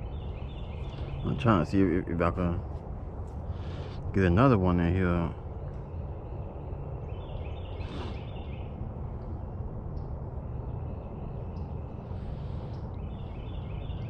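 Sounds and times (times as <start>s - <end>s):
bird chirping: 0.0s - 2.1s, 5.2s - 14.0s
steady low rumble: 0.0s - 14.0s.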